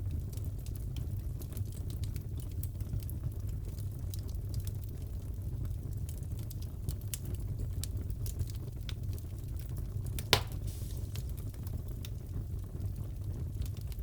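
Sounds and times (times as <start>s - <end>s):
wood fire crackling: 0.0s - 14.0s
fire popping: 8.2s - 14.0s.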